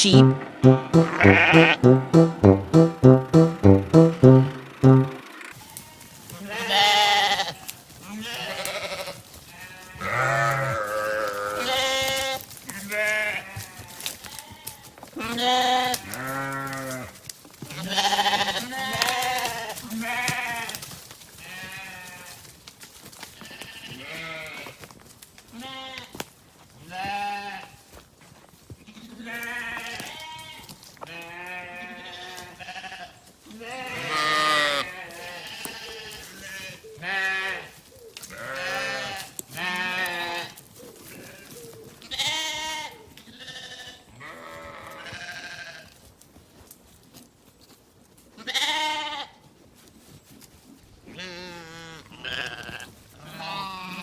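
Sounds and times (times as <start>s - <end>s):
sheep bleating: 0.0s - 2.0s, 6.4s - 17.0s, 17.8s - 20.7s, 31.1s - 37.7s, 38.3s - 40.5s, 42.1s - 45.8s, 48.4s - 49.3s, 51.2s - 54.0s.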